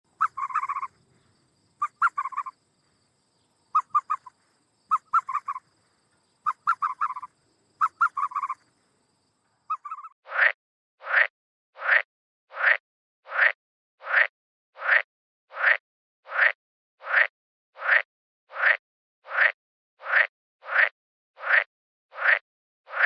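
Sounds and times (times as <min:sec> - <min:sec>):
bird rattling call: 0:00.1 - 0:02.6, 0:03.7 - 0:08.7, 0:09.7 - 0:10.2
loud rising bird call: 0:00.2 - 0:01.0.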